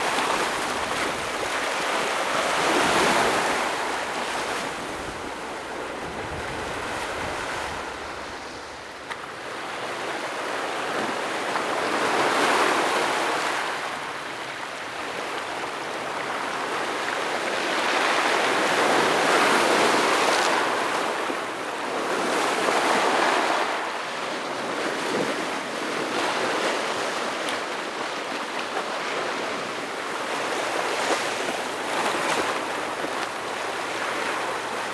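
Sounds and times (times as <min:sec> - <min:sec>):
waves breaking on rocky shore: 0:00.0 - 0:10.9.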